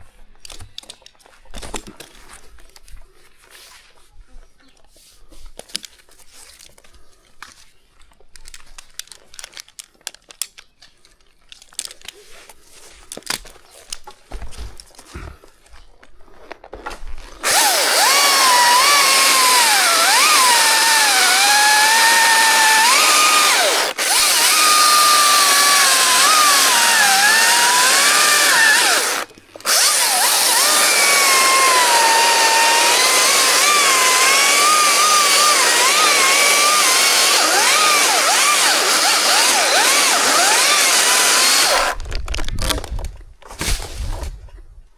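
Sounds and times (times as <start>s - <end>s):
faint clicks and rustles: 0.2s - 17.5s
chainsaw running at high revs: 17.4s - 42.0s.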